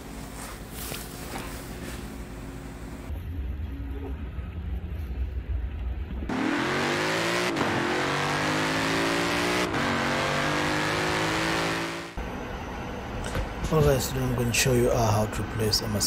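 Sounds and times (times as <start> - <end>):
car engine accelerating: 6.3 - 12.2.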